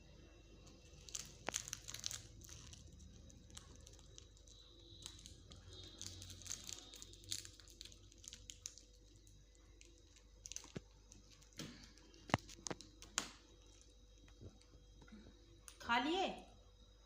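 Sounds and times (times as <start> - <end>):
parrot crunching food: 0.6 - 14.0.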